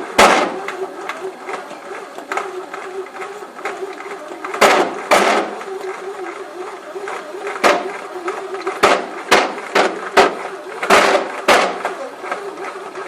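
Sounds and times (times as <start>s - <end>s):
bread maker motor humming: 0.0s - 13.0s
loud knocks and clacks: 0.1s - 0.8s, 4.5s - 5.6s, 7.5s - 8.0s, 8.6s - 12.4s.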